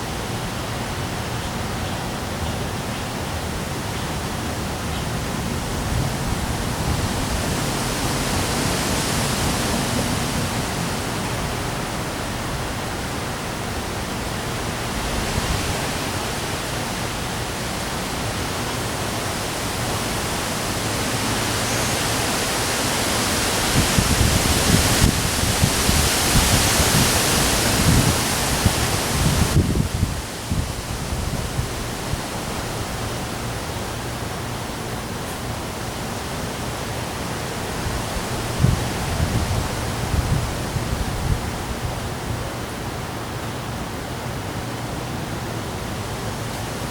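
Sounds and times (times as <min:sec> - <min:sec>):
heavy rain and strong wind: 0:00.0 - 0:46.9
wind gust rumbling on microphone: 0:03.2 - 0:33.7, 0:37.5 - 0:42.7.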